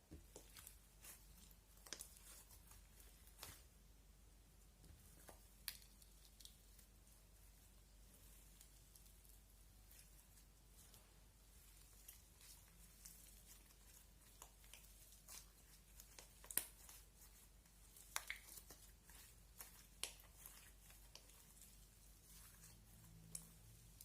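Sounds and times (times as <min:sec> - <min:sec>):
slime squished by hand: 0:08.2 - 0:24.0.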